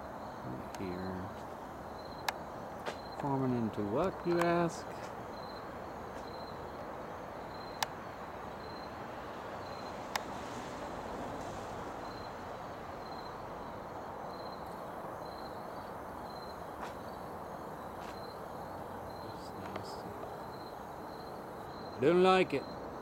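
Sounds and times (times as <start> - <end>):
cricket chirping: 0.0 - 23.0
outdoor hiss and rumble: 0.0 - 23.0
faint clicks: 19.6 - 20.3.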